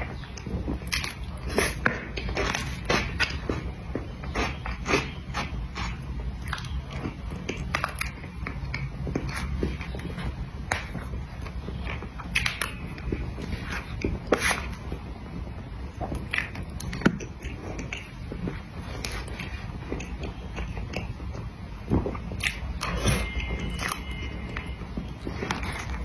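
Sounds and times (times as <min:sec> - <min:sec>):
chewing with wet mouth smacks: 0:00.0 - 0:26.0
low hum: 0:14.8 - 0:26.0.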